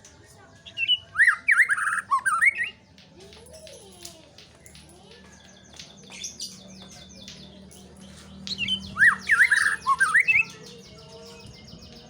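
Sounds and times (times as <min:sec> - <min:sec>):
bird chirping: 0:04.6 - 0:12.0.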